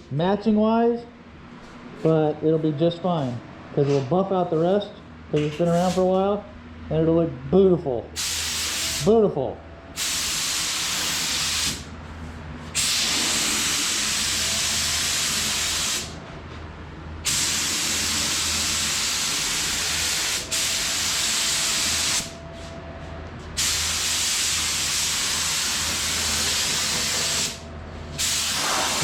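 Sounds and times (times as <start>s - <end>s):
paint spray gun hissing: 10.0s - 11.8s, 17.3s - 22.4s, 23.6s - 27.6s, 28.2s - 29.0s.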